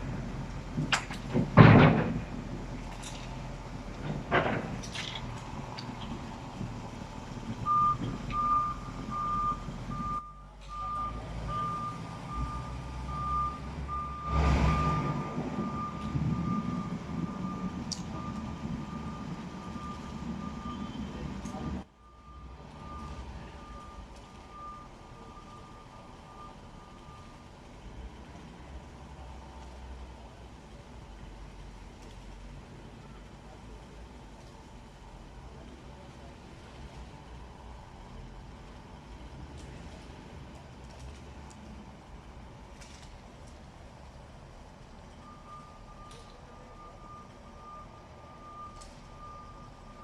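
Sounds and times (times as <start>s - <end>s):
truck engine running: 0.0s - 41.2s
truck backup alarm beeping: 7.6s - 27.8s, 44.9s - 50.0s.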